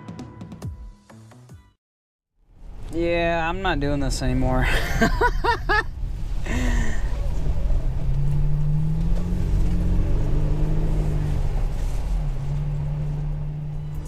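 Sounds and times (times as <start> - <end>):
truck engine humming: 3.7 - 14.0.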